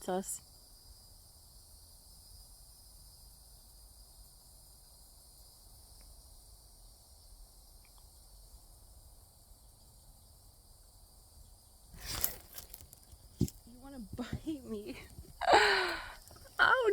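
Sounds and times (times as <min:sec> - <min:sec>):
high-pitched insect chorus: 0:00.0 - 0:16.9
faint ticks: 0:05.9 - 0:06.2, 0:07.8 - 0:08.2.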